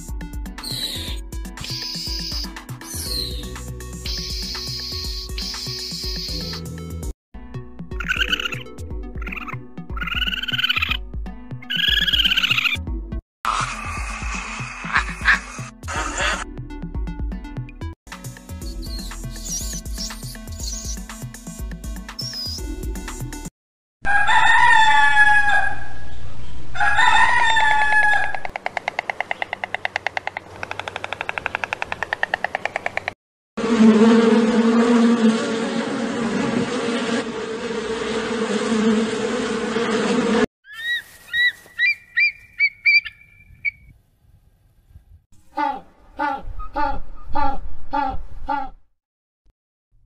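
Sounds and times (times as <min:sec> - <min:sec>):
quick bird chirps: 0:00.6 - 0:06.7, 0:18.6 - 0:21.1, 0:22.2 - 0:22.7, 0:40.7 - 0:43.9
rapid pulsing animal call: 0:04.0 - 0:06.5, 0:08.0 - 0:11.0, 0:13.5 - 0:16.4
rooster crowing: 0:24.0 - 0:26.0, 0:26.7 - 0:28.5.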